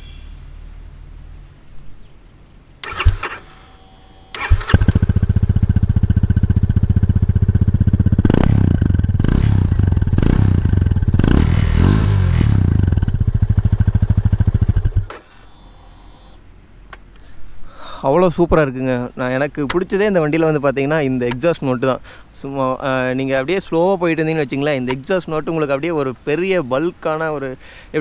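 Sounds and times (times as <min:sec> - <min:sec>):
motorcycle engine idling and revving: 0:02.8 - 0:16.4.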